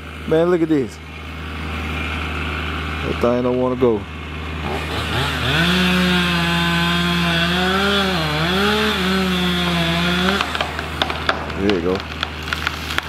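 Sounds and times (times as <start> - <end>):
chainsaw cutting tree: 0.0 - 13.0
low engine hum: 0.0 - 13.0.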